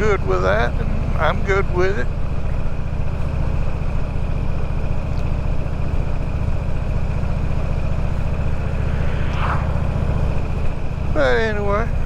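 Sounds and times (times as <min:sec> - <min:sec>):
wind and road noise hiss: 0:07.0 - 0:11.9.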